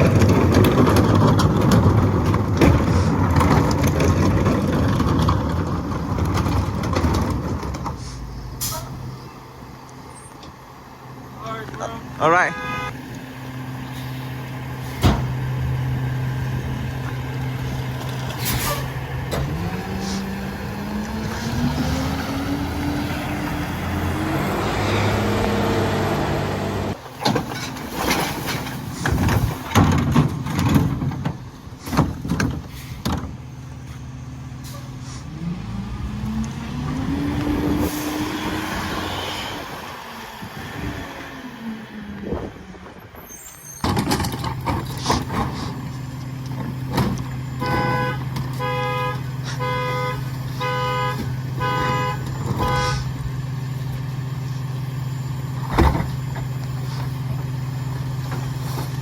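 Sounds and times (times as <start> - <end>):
loud clanks and bangs: 0.0 - 9.0
diesel engine idling and revving: 0.0 - 59.0.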